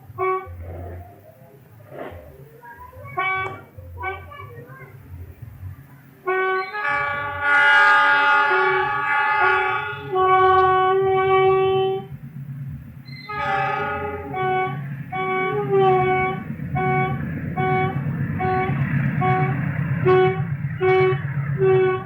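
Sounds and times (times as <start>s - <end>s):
train horn blasts: 0.0s - 1.0s, 3.1s - 4.5s, 6.2s - 12.2s, 13.2s - 22.0s
passing train rumble: 0.0s - 22.0s.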